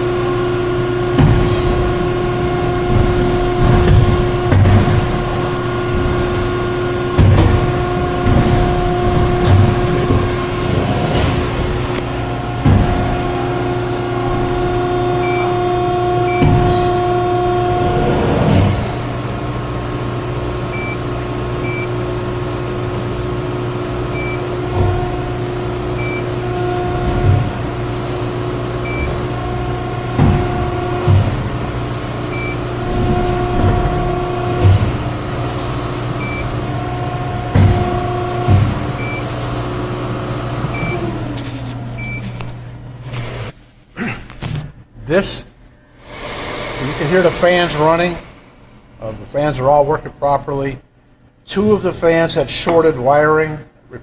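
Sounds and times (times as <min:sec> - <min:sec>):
machine humming with whine: 0:00.0 - 0:43.6
machine clunks: 0:01.1 - 0:19.4, 0:24.1 - 0:39.5.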